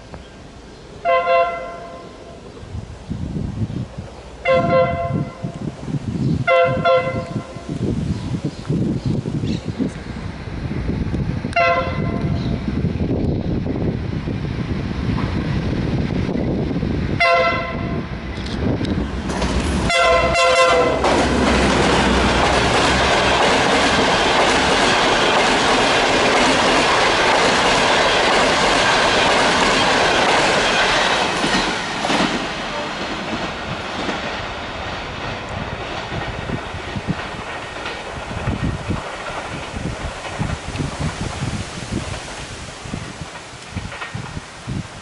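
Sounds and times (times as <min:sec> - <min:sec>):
train wheels rumbling on rail: 0:00.0 - 0:45.0
locomotive horn: 0:01.0 - 0:02.4, 0:04.4 - 0:05.6, 0:06.4 - 0:07.7, 0:11.5 - 0:12.4, 0:17.2 - 0:18.1, 0:19.7 - 0:22.4.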